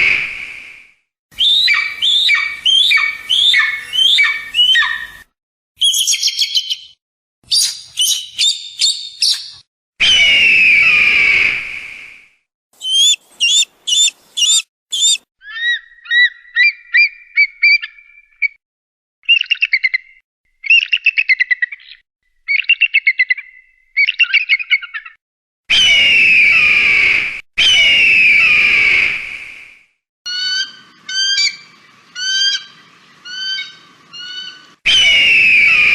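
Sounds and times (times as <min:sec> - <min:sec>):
eagle screams: 0:01.4 - 0:05.1, 0:10.0 - 0:11.6, 0:12.8 - 0:16.3, 0:25.7 - 0:29.1, 0:33.3 - 0:35.9
eagle piping and chattering: 0:12.8 - 0:15.2.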